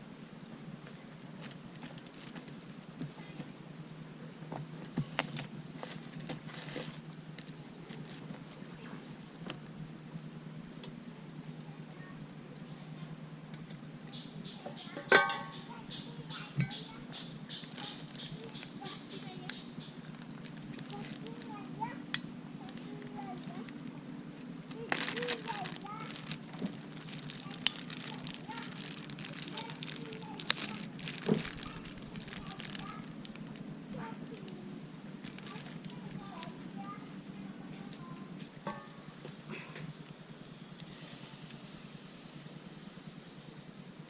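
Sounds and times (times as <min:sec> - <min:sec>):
campfire wood crackling: 0:00.0 - 0:44.0
steady low background noise: 0:00.0 - 0:44.0
sharp metallic clink: 0:14.5 - 0:16.9.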